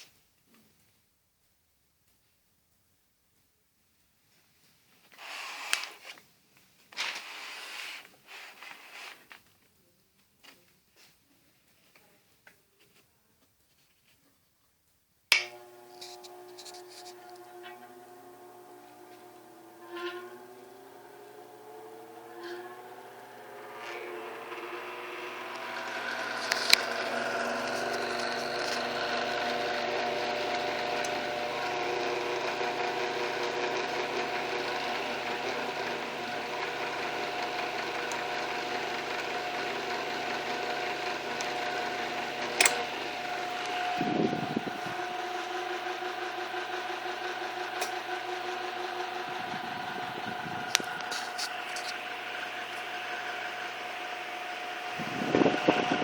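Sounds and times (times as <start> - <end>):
electric fan motor humming: 15.3 - 56.0.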